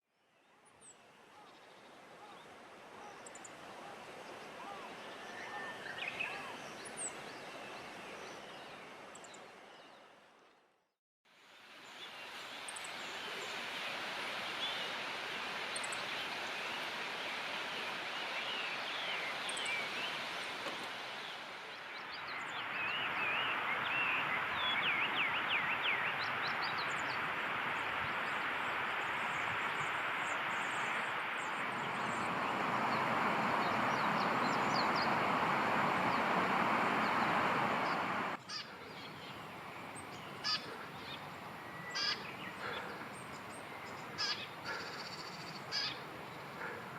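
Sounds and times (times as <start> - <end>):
steady rushing noise: 12.4 - 38.4
birds calling and chirping: 15.8 - 46.9.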